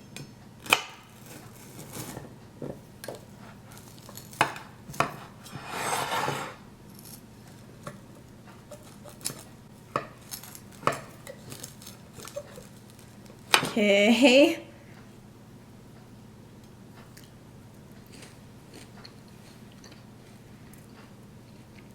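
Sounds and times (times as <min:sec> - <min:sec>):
utensil scraping a pan: 0:05.0 - 0:06.6
rustling scrape: 0:05.2 - 0:07.2.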